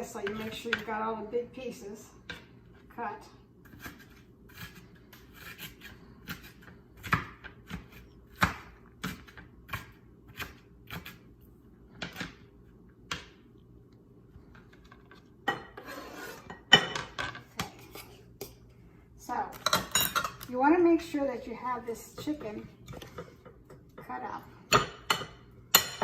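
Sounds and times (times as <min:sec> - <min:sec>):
knife chopping on cutting board: 0:03.7 - 0:11.2
food scraping on cutting board: 0:15.7 - 0:16.5.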